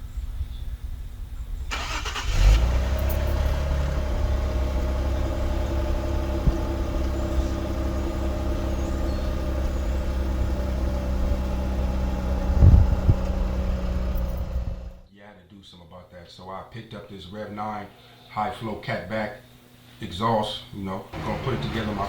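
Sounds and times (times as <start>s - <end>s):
car engine starting and idling: 1.7s - 15.1s, 21.1s - 22.0s.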